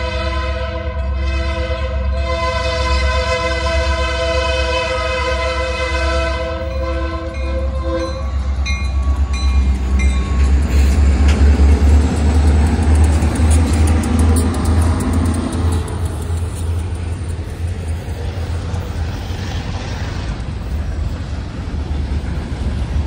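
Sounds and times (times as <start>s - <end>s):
locomotive horn chord: 0.0s - 8.4s
diesel engines rumbling: 4.8s - 23.0s.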